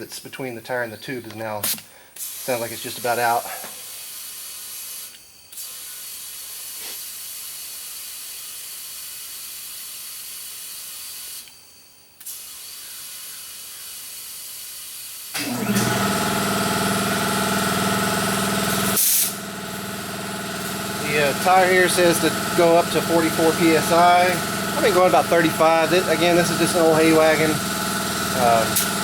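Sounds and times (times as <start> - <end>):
compressed air hissing: 1.6 - 11.5, 12.2 - 15.3, 17.0 - 29.0
motor humming: 15.4 - 29.0.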